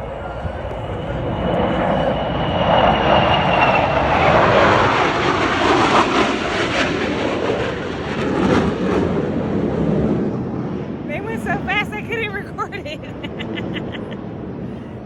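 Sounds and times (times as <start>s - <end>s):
aircraft engine rush: 0.0s - 15.0s.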